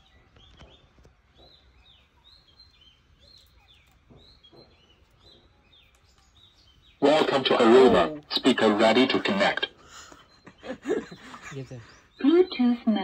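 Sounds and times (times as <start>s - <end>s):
bird chirping: 0.0s - 13.0s
low background hush: 7.0s - 13.0s.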